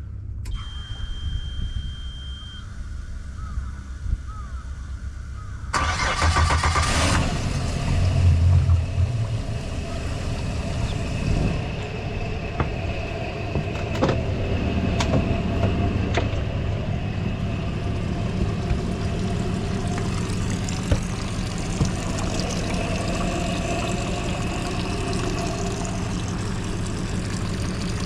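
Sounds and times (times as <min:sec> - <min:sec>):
outboard motor idling: 0:06.8 - 0:28.0.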